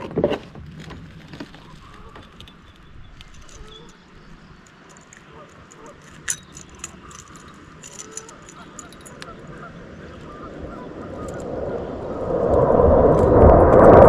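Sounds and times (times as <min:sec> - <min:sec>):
geese honking: 0:08.8 - 0:11.4
rushing noise: 0:10.6 - 0:14.0.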